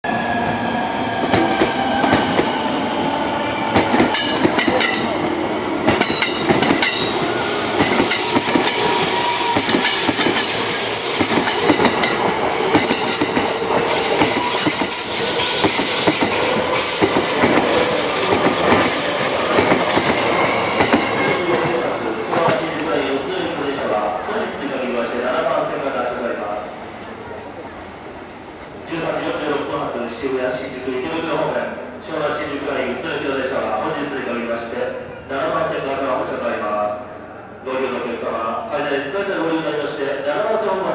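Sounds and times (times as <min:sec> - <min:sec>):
train rushing on rails: 0:00.0 - 0:40.9.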